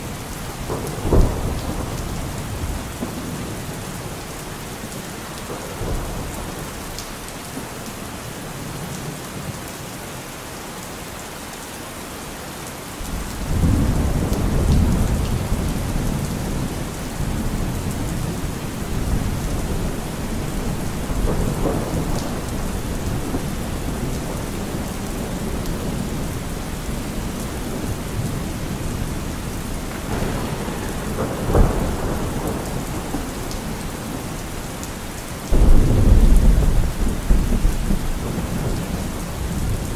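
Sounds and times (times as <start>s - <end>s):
low roll of thunder: 0.0s - 4.2s, 13.1s - 39.9s
steady rain falling: 0.0s - 39.9s
sharp thunderclap: 0.1s - 3.8s, 13.1s - 34.6s, 35.5s - 39.9s.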